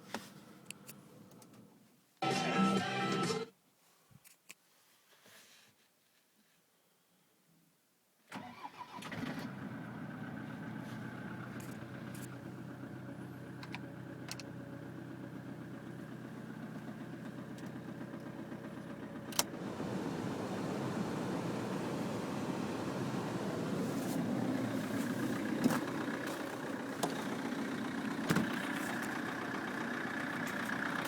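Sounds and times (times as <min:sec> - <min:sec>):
diesel engine starting and idling: 0:08.3 - 0:31.0.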